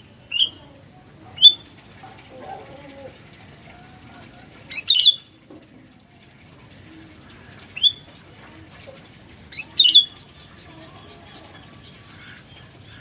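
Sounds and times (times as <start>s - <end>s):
faint steady hiss: 0.0s - 13.0s
bulbul calling: 0.3s - 0.7s, 1.3s - 1.7s, 4.7s - 5.3s, 7.3s - 8.1s, 9.5s - 13.0s.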